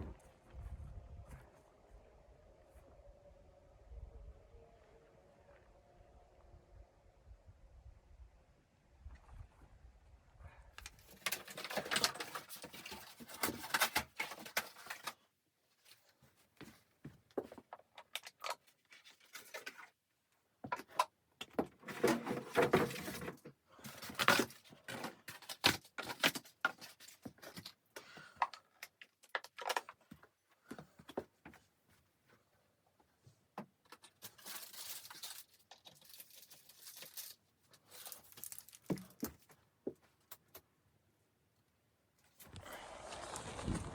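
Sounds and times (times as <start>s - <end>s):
gear rustling and scraping: 34.0s - 39.2s.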